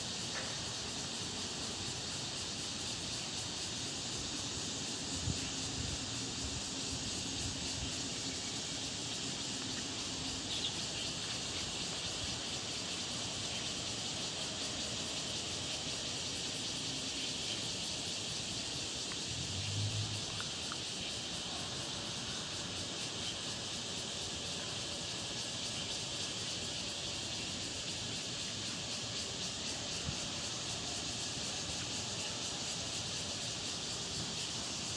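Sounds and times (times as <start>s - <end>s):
constant high hiss: 0.0s - 34.9s
brief low hum: 19.3s - 20.3s.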